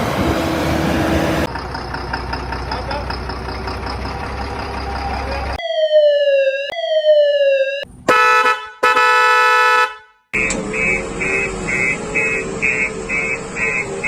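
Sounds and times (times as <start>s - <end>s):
engine rumble: 0.0s - 5.6s, 10.4s - 14.0s
falling siren-like tones: 4.5s - 8.0s, 10.4s - 14.0s.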